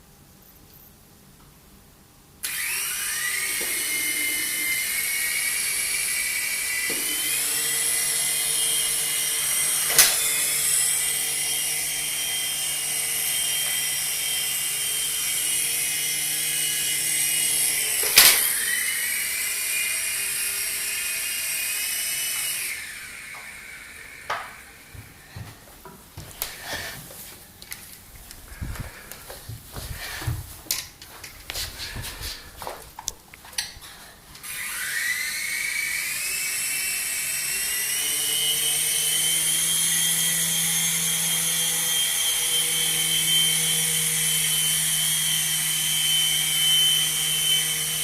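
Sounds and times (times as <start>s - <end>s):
toy helicopter motor whine: 2.4s - 25.3s, 34.4s - 48.0s.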